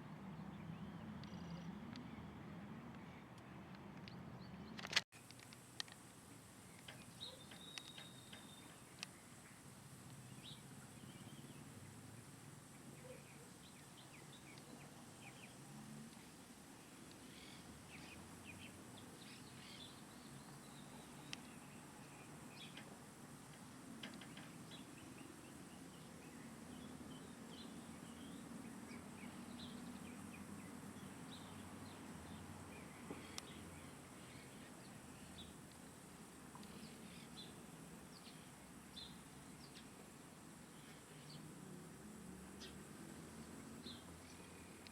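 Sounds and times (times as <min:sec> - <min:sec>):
sharp clicks: 0:06.7 - 0:09.2
faint bird chirps: 0:06.7 - 0:12.0, 0:12.8 - 0:22.9.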